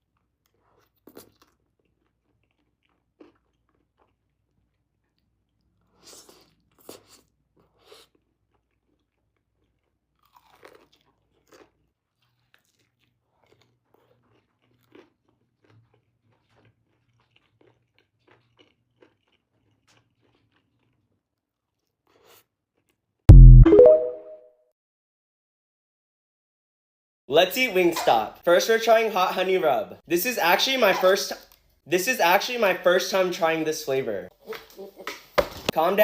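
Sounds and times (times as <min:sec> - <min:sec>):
chewing and crunching food: 0:00.0 - 0:23.3, 0:30.6 - 0:31.8.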